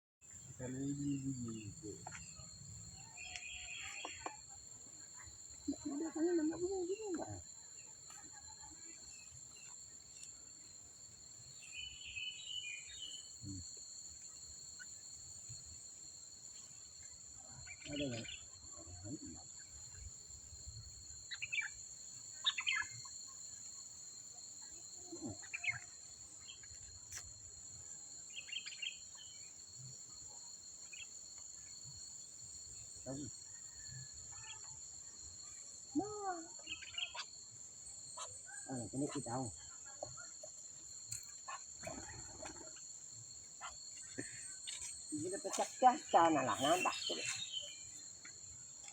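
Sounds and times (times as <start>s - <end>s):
insect drone: 0.2s - 48.9s
bird calls: 0.6s - 4.4s, 21.3s - 23.2s, 25.1s - 26.8s, 36.6s - 37.3s, 45.5s - 48.0s.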